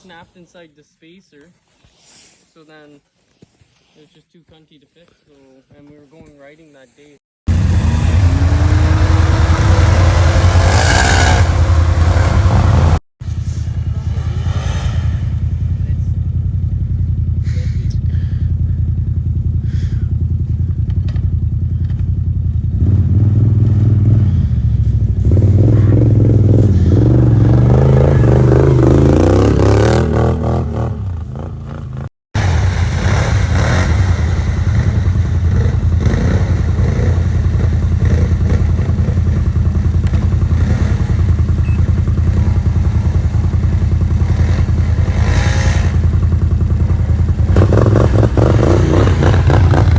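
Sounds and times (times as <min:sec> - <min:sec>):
atv engine revving: 0:07.5 - 0:49.9.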